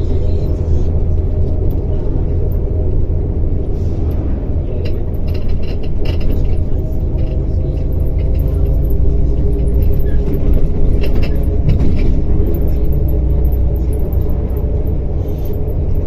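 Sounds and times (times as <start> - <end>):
bus diesel engine rumble: 0.0 - 16.0
light rattling clicks: 4.8 - 16.0.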